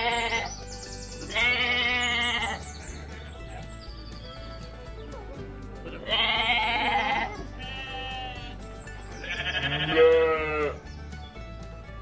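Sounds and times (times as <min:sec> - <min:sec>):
sheep bleating: 0:00.0 - 0:00.6, 0:01.2 - 0:02.7, 0:05.8 - 0:08.6, 0:09.2 - 0:10.8
calm background music: 0:00.0 - 0:12.0.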